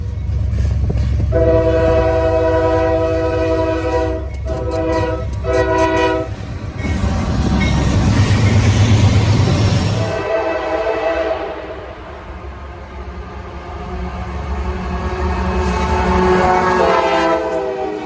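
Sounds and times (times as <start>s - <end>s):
train passing rumble and clatter: 0.0s - 18.0s
locomotive air horn blasts: 1.3s - 6.4s, 10.0s - 12.0s, 14.9s - 18.0s.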